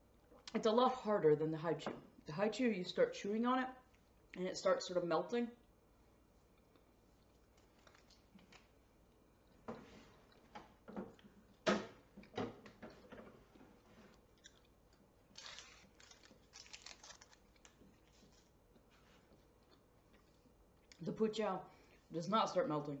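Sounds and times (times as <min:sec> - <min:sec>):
person chewing candy: 0:06.5 - 0:10.5, 0:14.1 - 0:21.0.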